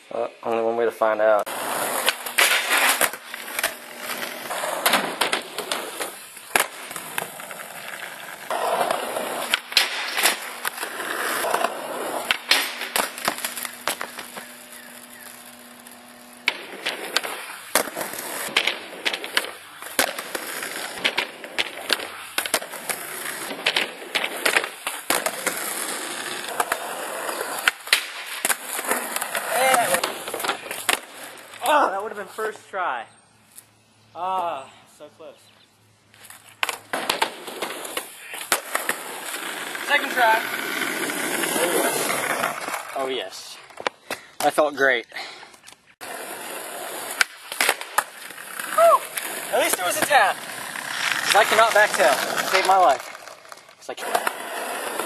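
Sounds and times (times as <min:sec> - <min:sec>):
skateboard rolling: 0:01.4 - 0:31.7, 0:36.2 - 0:43.9, 0:46.0 - 0:55.0
skateboard clacks: 0:01.5 - 0:14.6, 0:16.4 - 0:31.1, 0:36.6 - 0:43.0, 0:47.0 - 0:55.0.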